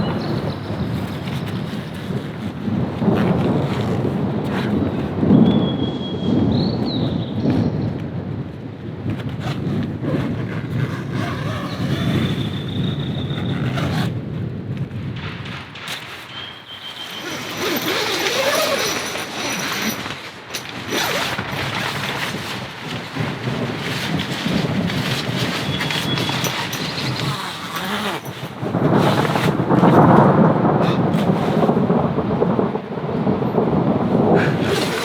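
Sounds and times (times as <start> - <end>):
knocks and handling noise: 15.2 - 31.8
rain falling: 17.0 - 35.0
thunder rumbling: 28.4 - 35.0.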